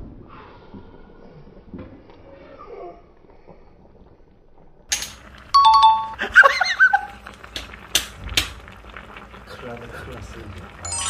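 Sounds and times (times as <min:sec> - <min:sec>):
two-note chime sound effect: 0:05.6 - 0:06.2.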